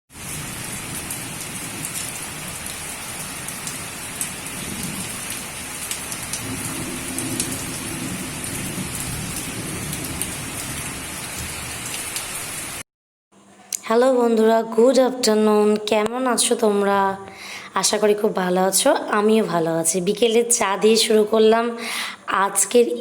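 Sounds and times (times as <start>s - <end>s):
heavy rain falling: 0.1s - 12.8s
raindrops ticking on surfaces: 0.1s - 12.8s.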